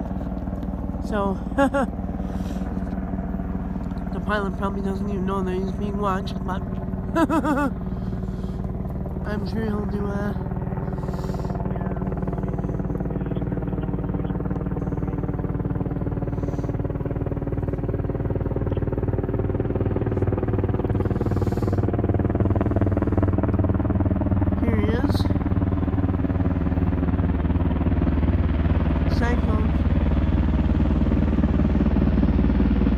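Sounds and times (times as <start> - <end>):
helicopter rotor and turbine drone: 0.0 - 32.9.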